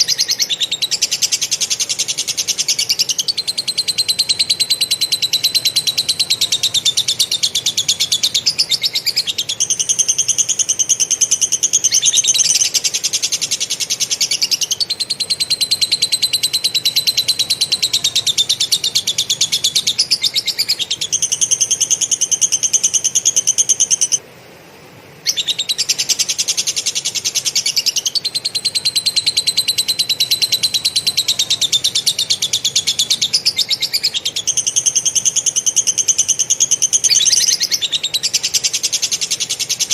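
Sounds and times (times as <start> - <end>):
songbird rapid rattling chatter: 0.0 - 24.2, 25.6 - 39.9.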